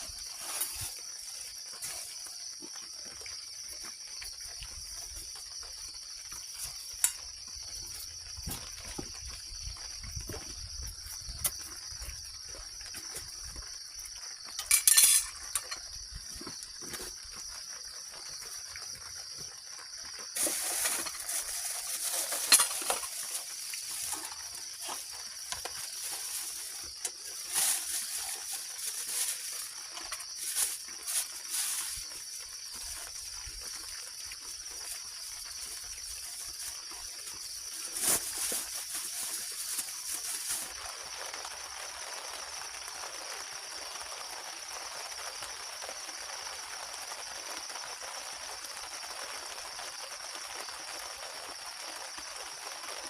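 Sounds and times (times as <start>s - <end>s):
rustling: 0.0s - 2.4s, 20.3s - 33.1s, 34.7s - 40.7s
insects buzzing: 0.0s - 46.9s
clinking clatter: 14.6s - 15.9s, 22.0s - 23.4s.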